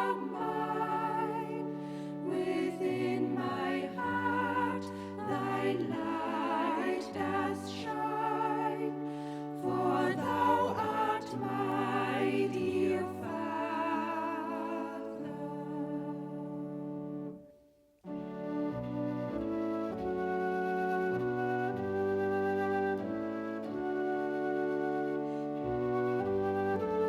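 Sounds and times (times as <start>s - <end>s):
choir singing slowly: 0.0s - 17.4s
instrumental accompaniment: 0.0s - 27.0s.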